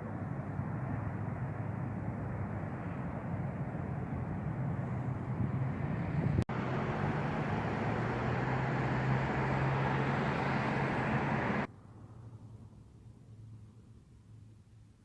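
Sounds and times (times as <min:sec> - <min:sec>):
vehicle engine hum: 0:00.0 - 0:13.6.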